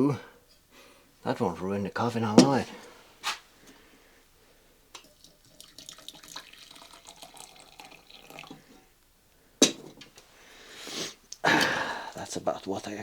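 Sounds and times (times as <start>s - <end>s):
liquid trickling and dripping: 4.9s - 8.8s.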